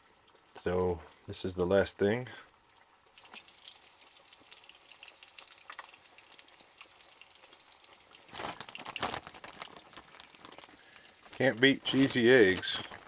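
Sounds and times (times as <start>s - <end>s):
eggs frying in a pan: 0.0s - 13.0s
plastic bag rustling: 8.3s - 13.0s.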